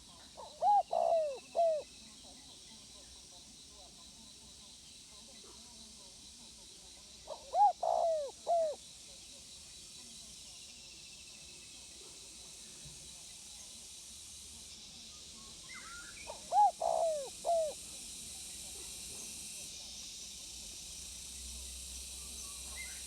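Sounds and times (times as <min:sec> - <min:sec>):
dove cooing: 0:00.4 - 0:01.9, 0:07.3 - 0:08.8, 0:16.3 - 0:17.8.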